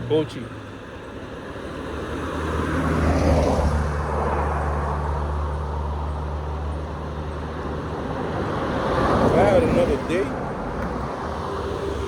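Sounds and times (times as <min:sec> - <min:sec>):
car engine humming: 0:00.0 - 0:01.7
road and tyre noise: 0:00.0 - 0:12.0.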